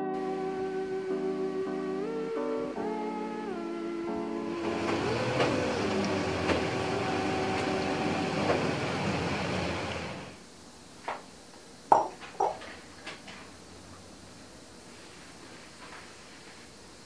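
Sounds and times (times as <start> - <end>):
soft background music: 0.0 - 8.5
glass bowl knocking on tiled counter: 11.9 - 12.7.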